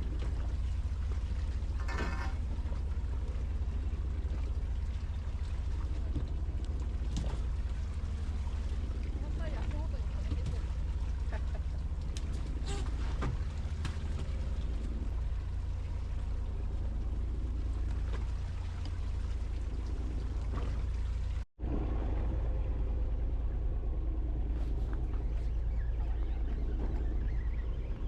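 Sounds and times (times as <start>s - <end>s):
boat engine rumbling: 0.0s - 28.0s.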